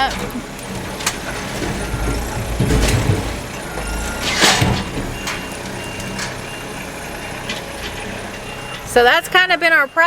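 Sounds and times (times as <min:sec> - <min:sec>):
heavy machinery engine running: 0:00.0 - 0:10.0
reverse alarm beeps: 0:01.5 - 0:10.0.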